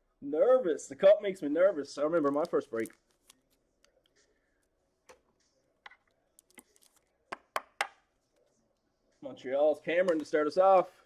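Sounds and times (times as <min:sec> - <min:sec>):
handling trading cards: 0:02.2 - 0:04.2, 0:06.1 - 0:07.5.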